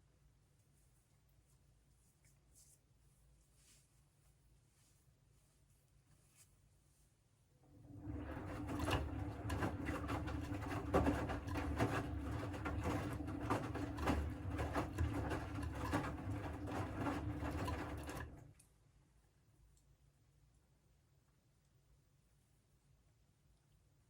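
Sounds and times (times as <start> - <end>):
washing machine drum rumbling: 7.8 - 18.4.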